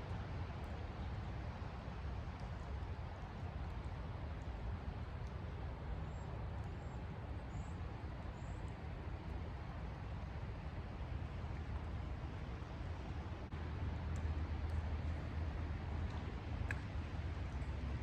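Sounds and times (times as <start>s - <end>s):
creek water flowing: 0.0s - 18.0s
rain: 0.0s - 18.0s.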